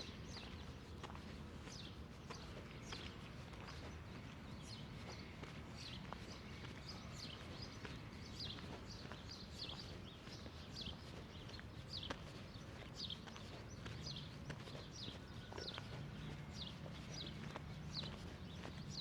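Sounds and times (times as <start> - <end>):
small birds chirping: 0.3 - 19.0.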